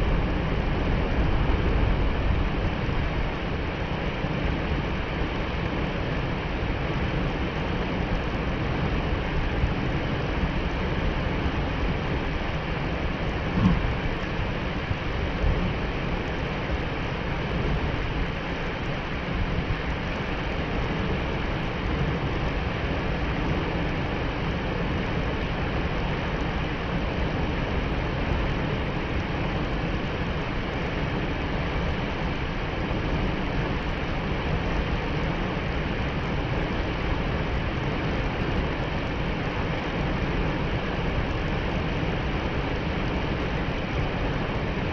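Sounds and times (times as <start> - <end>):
waterfall roaring: 0.0 - 44.9.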